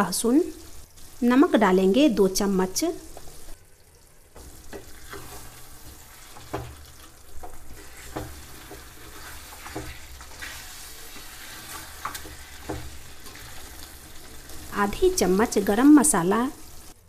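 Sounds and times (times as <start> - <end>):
meat sizzling in pan: 0.0 - 17.0
spatula knocking against pan: 6.4 - 9.0, 12.0 - 13.0.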